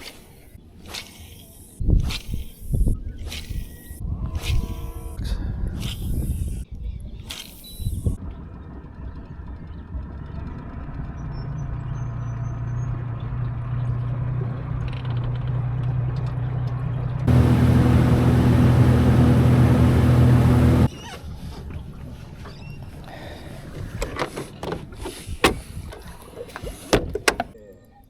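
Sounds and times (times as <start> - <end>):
boat motor humming: 17.3 - 20.9.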